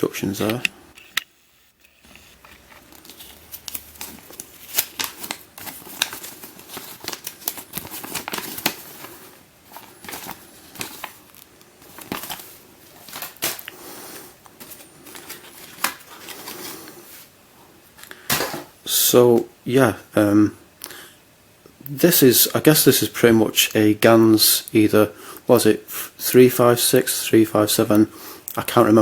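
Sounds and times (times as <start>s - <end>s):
packaging rustling: 2.0s - 17.3s.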